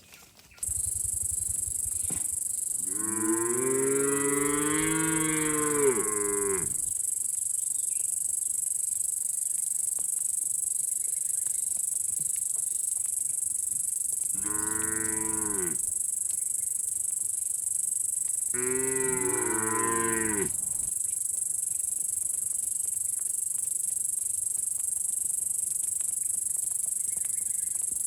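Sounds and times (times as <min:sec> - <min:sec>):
cattle mooing: 0:02.8 - 0:06.9, 0:14.4 - 0:15.8, 0:18.6 - 0:20.9.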